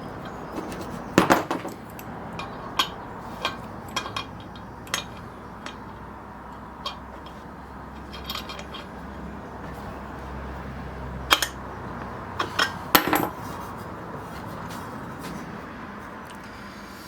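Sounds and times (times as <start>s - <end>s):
small metal parts clinking: 0.2s - 10.2s, 11.2s - 11.6s, 12.4s - 13.6s.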